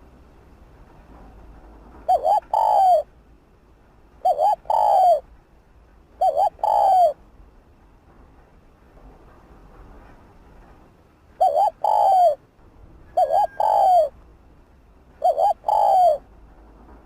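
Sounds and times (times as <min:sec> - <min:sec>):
dove cooing: 0:02.0 - 0:03.1, 0:04.2 - 0:05.2, 0:06.2 - 0:07.2, 0:11.4 - 0:12.4, 0:13.1 - 0:14.2, 0:15.2 - 0:16.3.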